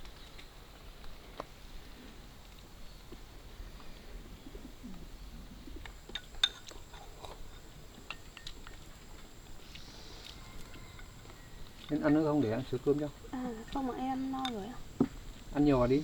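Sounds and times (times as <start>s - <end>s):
bird cooing faintly: 3.8s - 5.9s, 9.6s - 11.8s.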